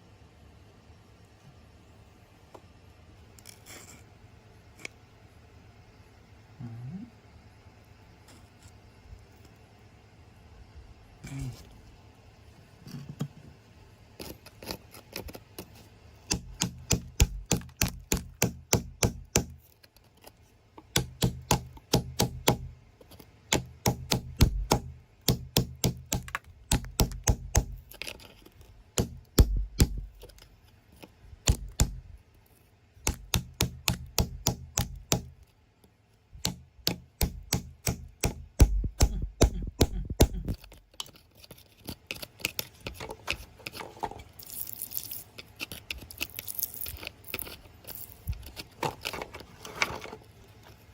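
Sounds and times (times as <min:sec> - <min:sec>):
metal tool chipping at rock: 0:14.2 - 0:19.6, 0:20.9 - 0:22.7, 0:23.5 - 0:28.2, 0:29.0 - 0:30.5, 0:31.4 - 0:32.1, 0:33.0 - 0:35.4, 0:36.4 - 0:41.1.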